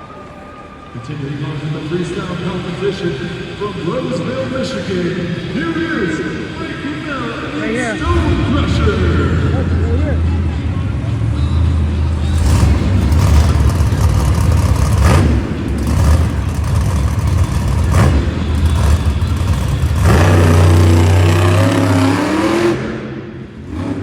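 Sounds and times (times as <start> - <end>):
truck engine revving hard: 11.2 - 24.0.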